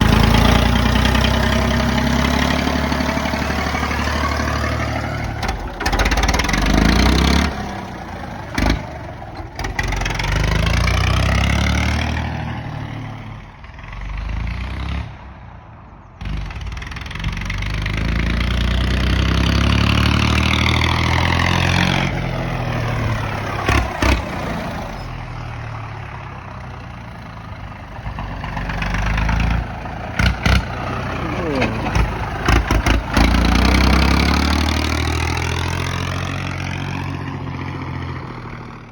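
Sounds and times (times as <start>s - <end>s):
tractor engine revving: 0.0s - 15.4s, 16.2s - 38.9s.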